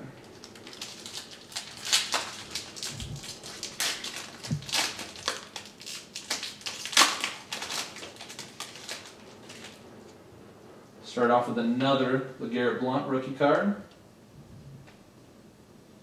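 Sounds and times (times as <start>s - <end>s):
foil wrapper tearing and crinkling: 0.2s - 9.8s
dull low thumps: 4.5s - 4.7s.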